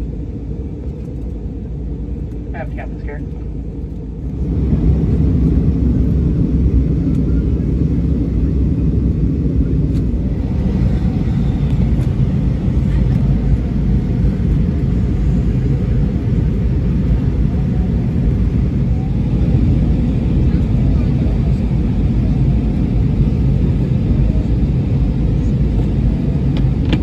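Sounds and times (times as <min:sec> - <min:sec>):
airplane cabin engine rumble: 0:00.0 - 0:27.0.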